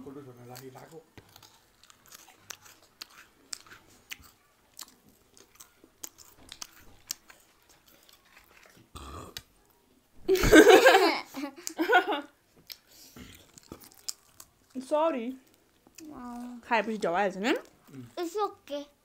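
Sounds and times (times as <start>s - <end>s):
chewing with crunches: 0.4s - 9.8s, 12.6s - 18.4s
person burping: 8.9s - 9.4s.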